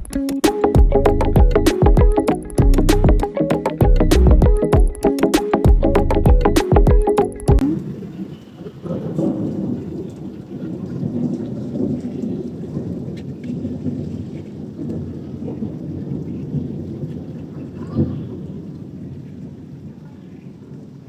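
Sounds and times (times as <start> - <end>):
thunder rumbling: 7.6 - 21.0
steady rain: 7.8 - 21.0.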